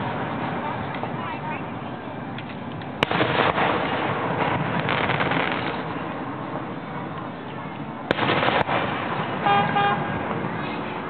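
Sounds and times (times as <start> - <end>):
fireworks crackling: 0.0 - 11.0
firework shells bursting bangs: 2.9 - 6.2, 8.1 - 10.4.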